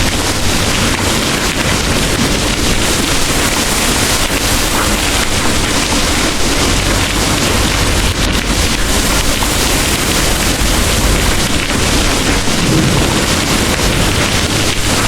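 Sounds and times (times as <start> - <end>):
heavy rain pouring: 0.0 - 15.0
deep low rumble: 6.8 - 15.0.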